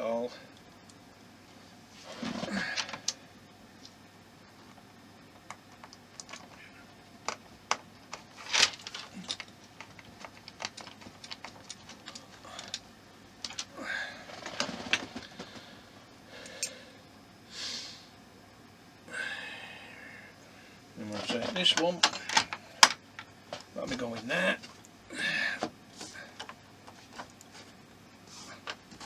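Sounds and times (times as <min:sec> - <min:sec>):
small parts clicking and tapping: 0:04.6 - 0:13.7, 0:21.2 - 0:24.0, 0:26.4 - 0:27.5
scraping rustles: 0:21.0 - 0:22.6.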